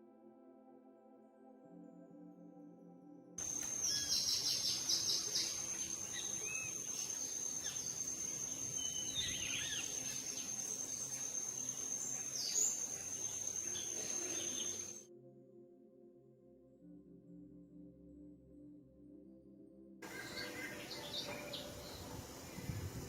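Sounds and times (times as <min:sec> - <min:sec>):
bird chirps and calls: 0:03.4 - 0:15.0
insect trill: 0:03.4 - 0:15.0, 0:20.0 - 0:23.0.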